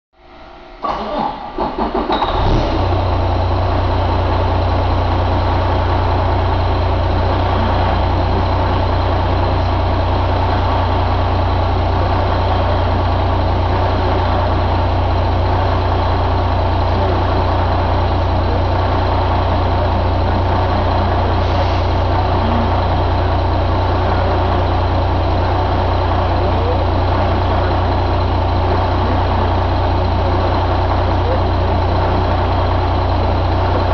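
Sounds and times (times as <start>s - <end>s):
engine starter cranking: 0.8s - 3.0s
diesel engine idling: 0.8s - 33.9s.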